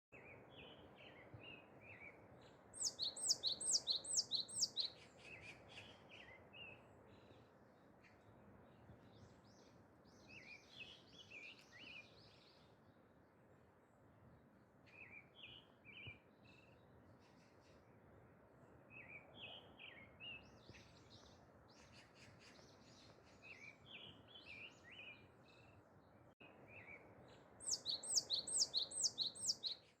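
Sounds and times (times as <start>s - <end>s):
soft bird chirps: 0.2s - 12.8s, 26.6s - 30.0s.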